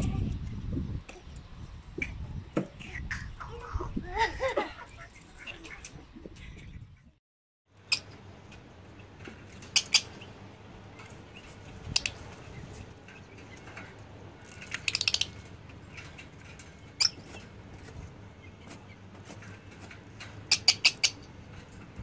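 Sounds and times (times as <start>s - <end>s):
birds scuffling: 7.8s - 22.0s
birds making sharp calls: 8.8s - 21.6s.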